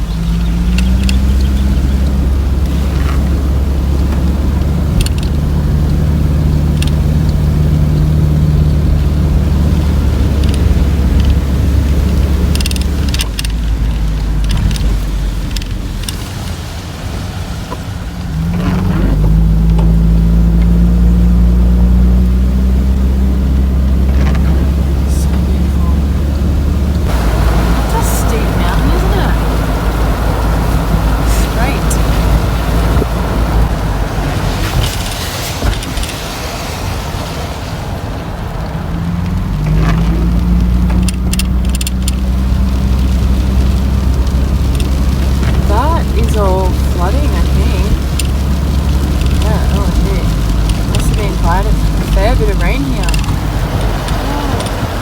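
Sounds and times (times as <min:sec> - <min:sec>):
cab rattles: 0:00.0 - 0:16.4, 0:17.6 - 0:36.6, 0:38.6 - 0:55.0
van engine running: 0:00.0 - 0:55.0.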